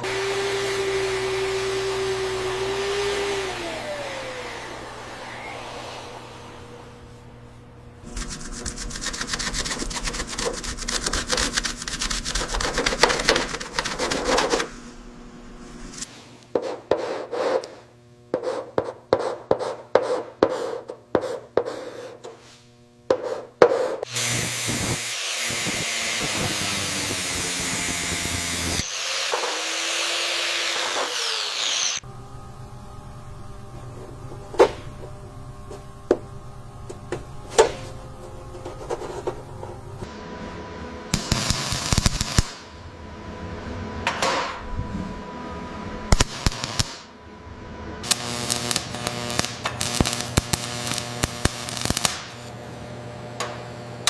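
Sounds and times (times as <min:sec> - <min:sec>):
back-and-forth hand tool strokes: 0:18.4 - 0:32.0.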